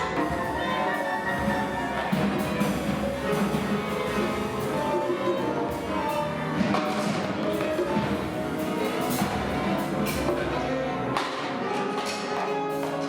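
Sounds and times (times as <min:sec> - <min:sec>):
acoustic ensemble improvising: 0:00.0 - 0:13.0
drum and percussion strikes: 0:00.0 - 0:13.0.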